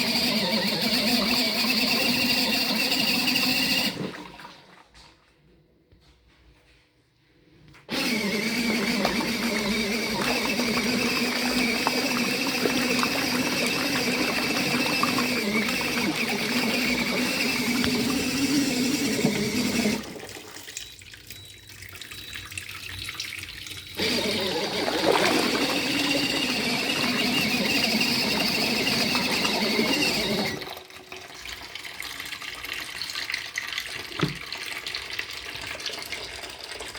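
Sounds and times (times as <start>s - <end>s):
washing machine motor humming: 0.0s - 4.8s, 7.9s - 20.8s, 23.9s - 31.0s
water churning in tub: 0.0s - 4.9s, 7.9s - 20.8s, 23.5s - 36.9s.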